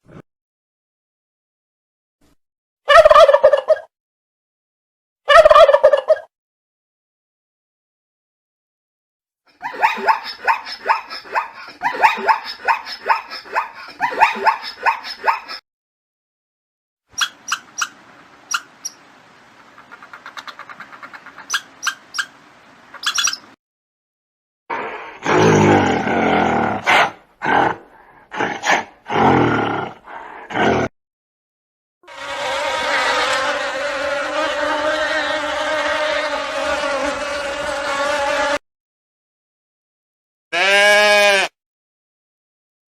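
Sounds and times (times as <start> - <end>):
dog yelping: 9.6 - 15.5
flying insect buzzing: 32.1 - 38.6.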